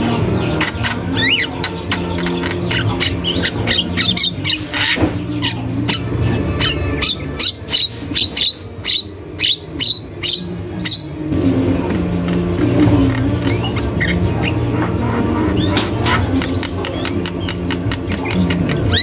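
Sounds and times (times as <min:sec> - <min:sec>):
myna bird calling: 0:00.0 - 0:11.2, 0:13.0 - 0:19.0
steady low hum: 0:00.0 - 0:19.0.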